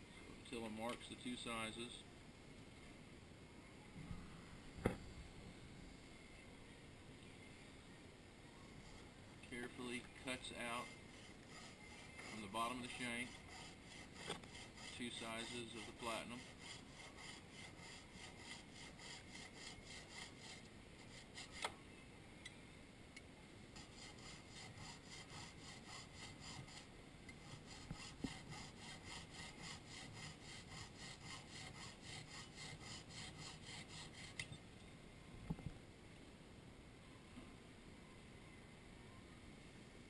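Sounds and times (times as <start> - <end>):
saw cutting metal: 9.6 - 21.7, 23.8 - 34.5.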